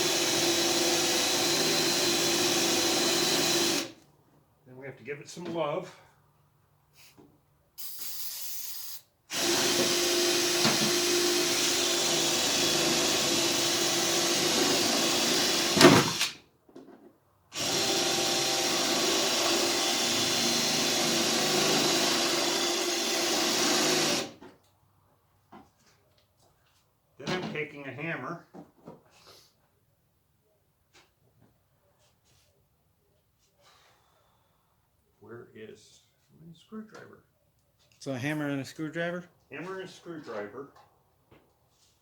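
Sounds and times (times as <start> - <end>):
electric drill drilling metal: 0.0 - 3.9, 8.7 - 16.4, 17.5 - 24.4.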